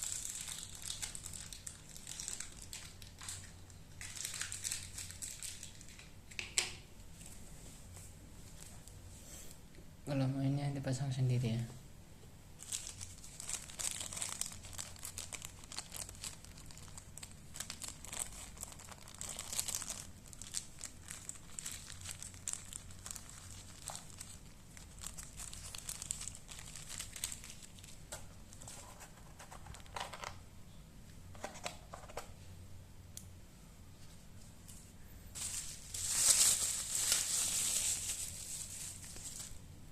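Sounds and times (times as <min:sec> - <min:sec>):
plastic packaging crinkling: 0:00.0 - 0:06.1, 0:12.6 - 0:30.4, 0:35.3 - 0:39.6.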